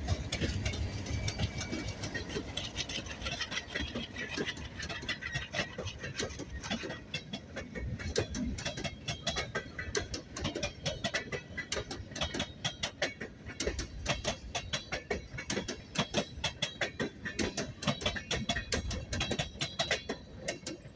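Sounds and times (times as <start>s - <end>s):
freight train rumbling past: 0.0s - 7.1s
metallic clicking of train wheels: 0.0s - 20.9s.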